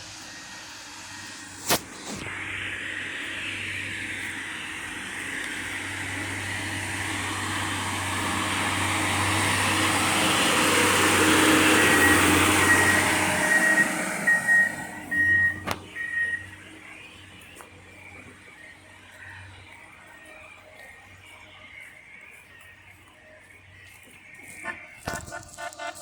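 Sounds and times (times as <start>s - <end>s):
rail vehicle engine and wheels: 0.0s - 26.0s
high warning beeps: 11.5s - 18.8s.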